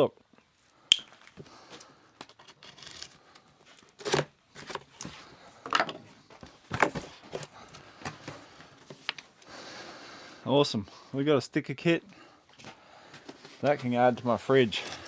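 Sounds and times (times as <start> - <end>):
packaging rustling and crinkling: 2.2 - 5.4, 6.3 - 9.4.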